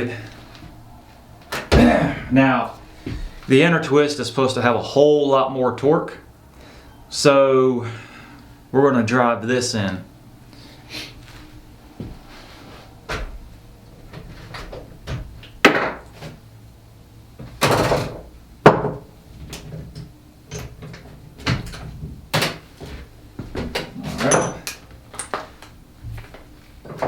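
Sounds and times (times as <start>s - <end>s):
tools knocking and clunking: 23.6s - 25.4s.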